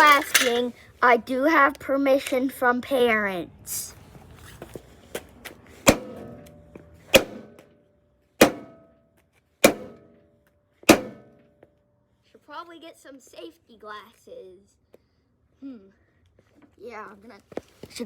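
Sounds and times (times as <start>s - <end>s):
heavy hammer blows on metal: 5.8s - 6.4s, 7.1s - 7.6s, 8.4s - 8.8s, 9.6s - 10.0s, 10.9s - 11.3s.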